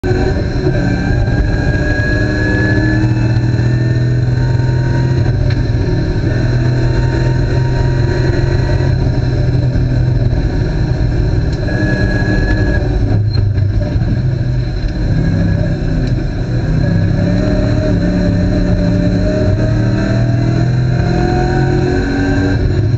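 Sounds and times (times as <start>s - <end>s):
race car engine at high revs: 0.0s - 22.9s.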